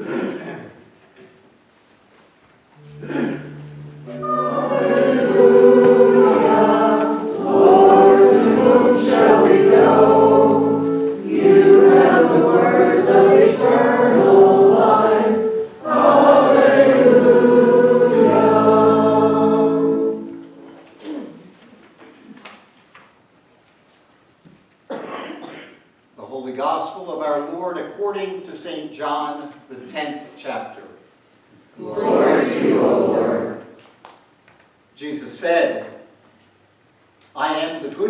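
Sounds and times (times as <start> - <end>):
congregation singing: 2.8 - 21.0, 31.8 - 33.8
organ-like keyboard chords: 2.8 - 21.0.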